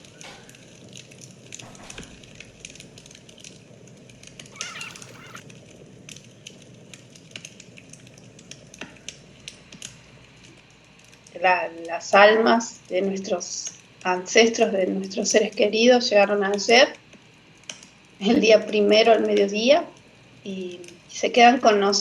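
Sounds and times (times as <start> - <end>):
short warbling chirp: 4.5 - 5.4.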